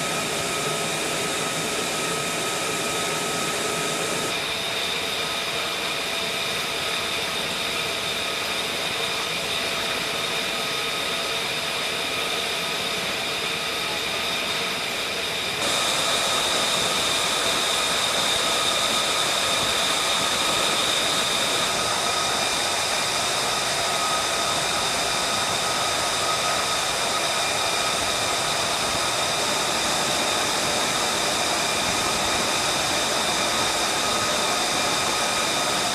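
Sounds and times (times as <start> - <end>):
jet engine running: 0.0 - 35.9.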